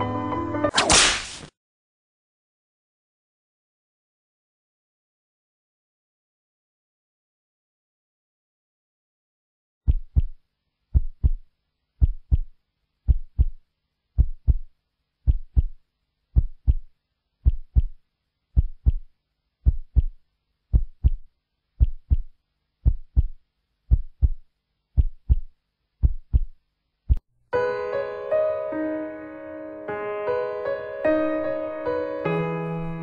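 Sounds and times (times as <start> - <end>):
heartbeat thumps: 9.9 - 13.6, 14.2 - 18.0, 18.6 - 27.2.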